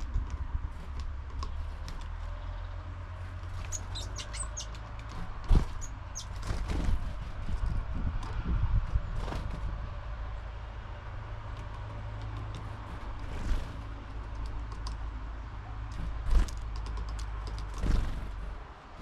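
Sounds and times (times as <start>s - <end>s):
birds pecking on feeder: 0.0s - 8.3s, 11.5s - 15.1s, 15.9s - 19.0s
low steady rumble: 0.0s - 19.0s
small birds chirping: 1.4s - 6.5s.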